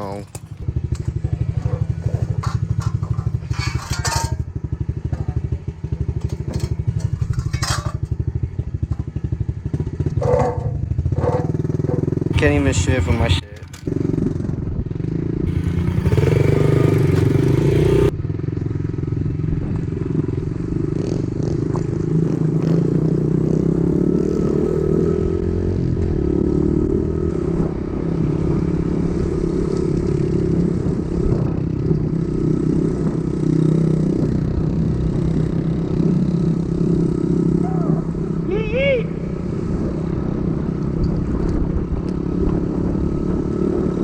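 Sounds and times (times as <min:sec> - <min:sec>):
dirt bike engine running: 0:00.0 - 0:24.1.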